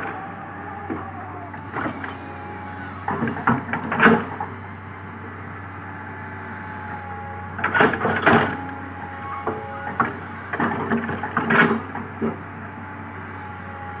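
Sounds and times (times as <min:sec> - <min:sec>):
excavator running: 0:00.0 - 0:14.0.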